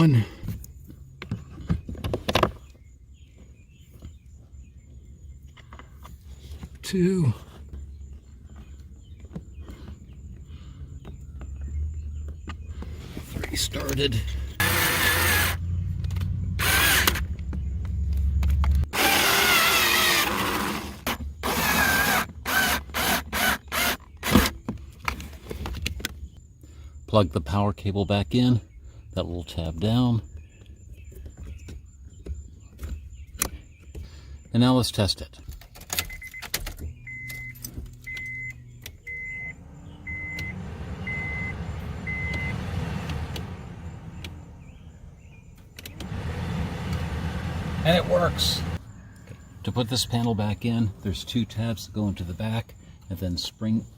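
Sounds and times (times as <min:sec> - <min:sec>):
blower motor whining: 0:14.5 - 0:17.3, 0:18.8 - 0:24.4, 0:36.9 - 0:48.8
power drill driving screws: 0:14.6 - 0:15.6, 0:16.6 - 0:17.3, 0:18.9 - 0:24.5
car chime beeping: 0:36.0 - 0:44.5
clicks: 0:40.1 - 0:43.6, 0:44.2 - 0:44.4.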